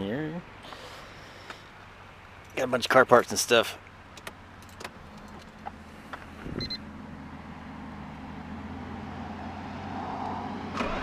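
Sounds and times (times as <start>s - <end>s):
steady low hum: 3.9s - 10.0s
short beep: 6.5s - 6.8s
engine starter cranking: 10.8s - 11.0s.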